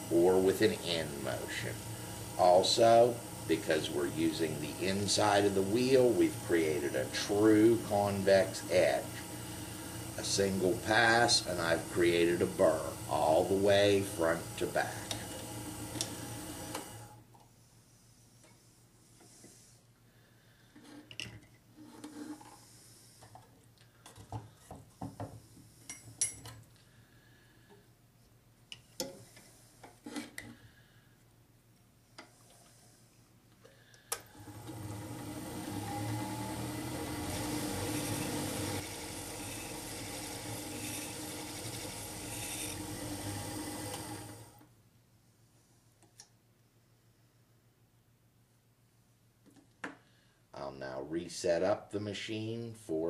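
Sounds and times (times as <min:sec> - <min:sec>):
sharpening machine running: 0:00.0 - 0:17.2, 0:34.3 - 0:44.6.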